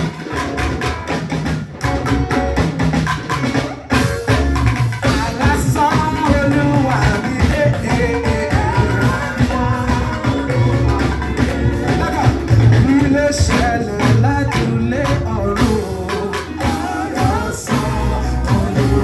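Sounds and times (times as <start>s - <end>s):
church praise music with drum beat: 0.0s - 19.0s
person singing: 5.0s - 19.0s.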